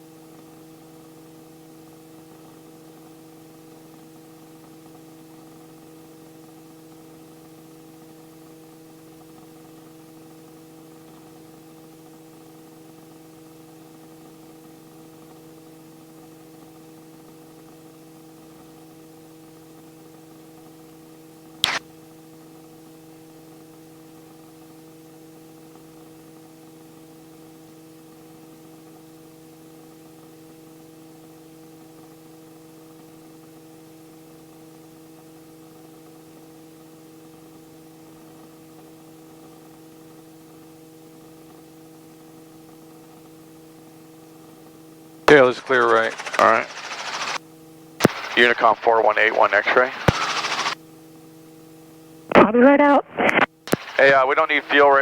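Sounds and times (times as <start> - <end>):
electrical hum and hiss: 45.3 - 47.4, 48.0 - 50.8, 52.3 - 55.0
sharp click: 48.0 - 48.9, 53.3 - 54.0.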